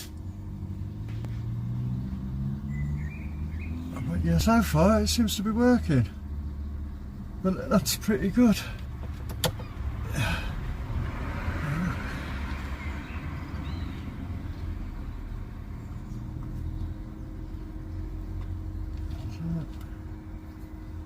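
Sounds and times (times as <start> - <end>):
air heater humming: 14.4 - 21.0.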